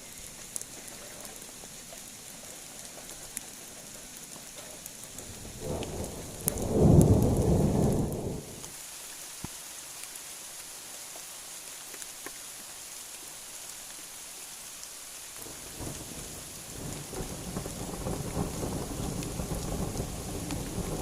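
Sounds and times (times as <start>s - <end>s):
raindrops ticking: 0.0s - 8.8s, 15.4s - 21.0s
heavy rain: 0.0s - 21.0s
thunder rumbling: 5.2s - 8.6s, 15.7s - 21.0s.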